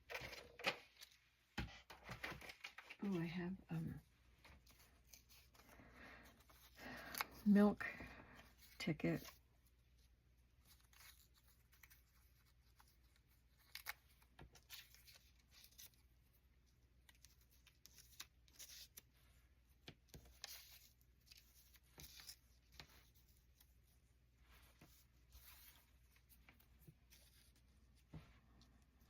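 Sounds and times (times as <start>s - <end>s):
paper rustling and tapping: 0.0s - 3.1s.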